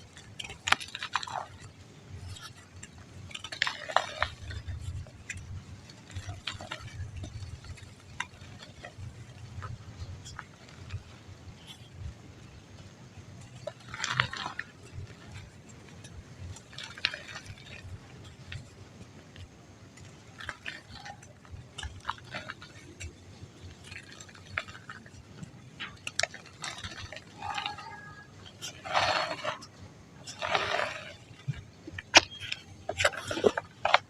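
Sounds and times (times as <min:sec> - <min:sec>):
dry mud crumbling: 0:00.0 - 0:34.0.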